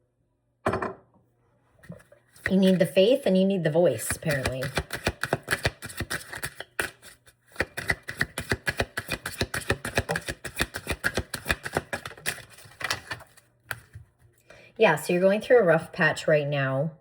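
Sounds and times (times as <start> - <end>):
cards being shuffled: 4.1 - 14.0.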